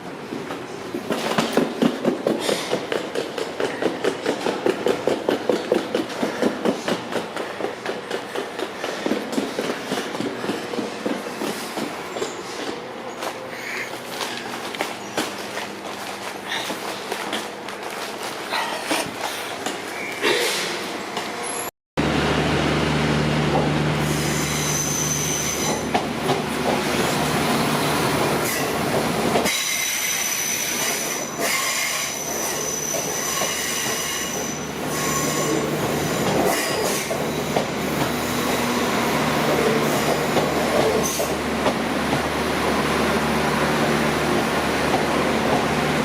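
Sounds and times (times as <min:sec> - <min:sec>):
wheels rumbling on rail: 0:00.0 - 0:46.0
diesel engine hum: 0:22.0 - 0:24.1
wheel squeal: 0:24.0 - 0:25.9, 0:29.5 - 0:37.6.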